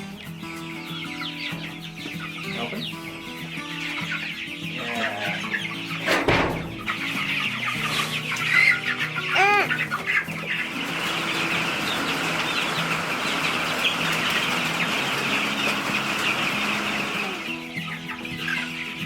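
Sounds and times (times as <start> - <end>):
chicks peeping and chirping: 0.0 - 19.0
loud chick call: 4.8 - 18.6.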